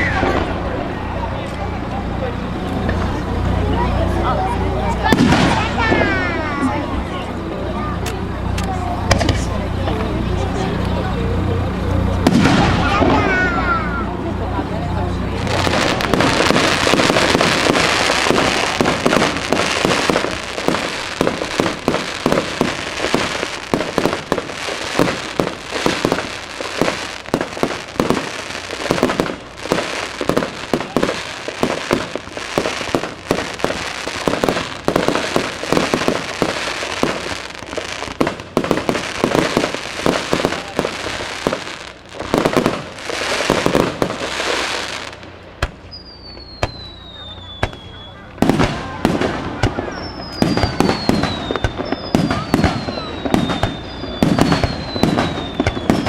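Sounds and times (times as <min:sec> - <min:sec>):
fireworks crackling and banging: 0:00.0 - 0:56.0
falling firework whistle: 0:45.6 - 0:56.0.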